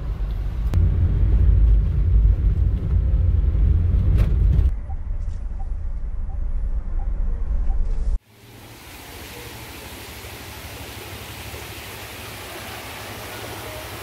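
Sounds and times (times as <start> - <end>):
moving vehicle rumble: 0.0 - 14.0.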